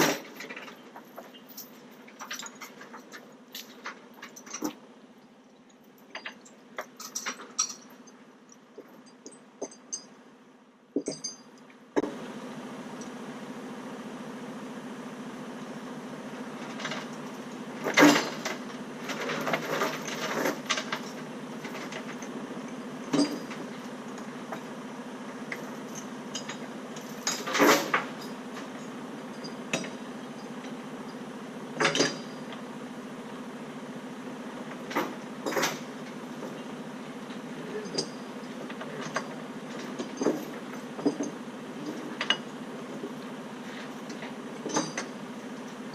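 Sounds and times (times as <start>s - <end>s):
metal clanks and rattles: 0.0s - 10.2s, 11.0s - 12.2s, 16.6s - 24.7s, 25.6s - 31.2s, 31.8s - 32.7s, 34.7s - 36.7s, 37.3s - 45.9s
engine hum: 0.0s - 45.9s.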